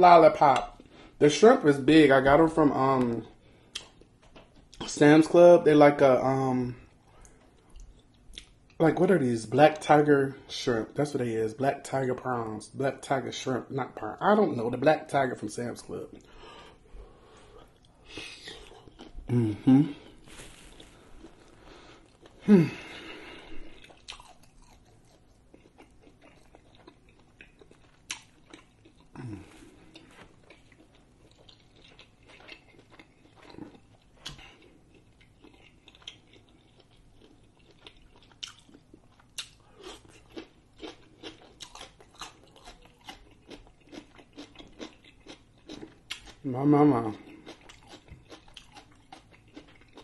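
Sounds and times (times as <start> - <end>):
person humming mmm: 19.3 - 20.1, 22.4 - 23.5, 29.2 - 29.8
mouth chewing wet smacks: 29.8 - 46.4.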